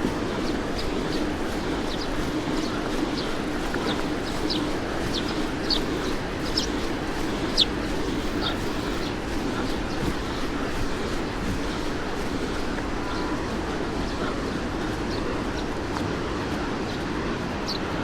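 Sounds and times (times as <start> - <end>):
low background hum: 0.0 - 18.0
small birds chirping: 0.0 - 18.0.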